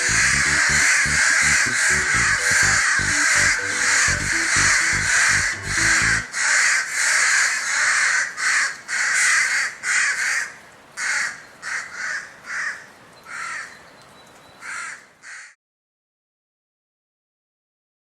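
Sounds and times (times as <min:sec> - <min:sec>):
crow cawing harshly: 0:05.8 - 0:13.7, 0:14.6 - 0:15.6.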